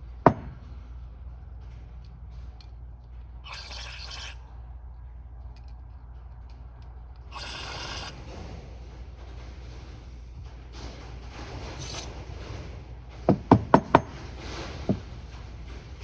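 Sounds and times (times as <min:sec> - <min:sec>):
steady low hum: 0:00.0 - 0:16.0
aerosol can spraying: 0:03.5 - 0:04.4.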